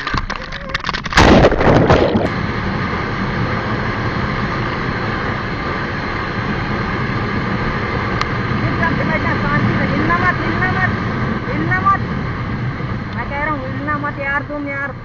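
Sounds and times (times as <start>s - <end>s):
clattering noise: 0.0s - 2.3s
motorcycle crash impact: 0.0s - 2.3s
steady rushing noise: 0.0s - 15.0s.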